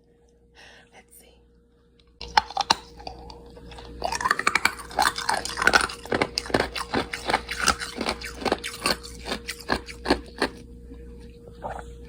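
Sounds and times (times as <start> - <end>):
ice cubes being chewed: 2.2 - 11.0.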